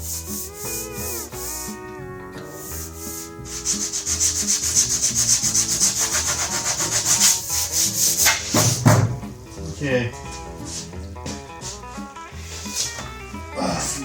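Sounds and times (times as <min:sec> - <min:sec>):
sandpaper scratching on metal: 0:00.0 - 0:01.8, 0:02.6 - 0:08.8.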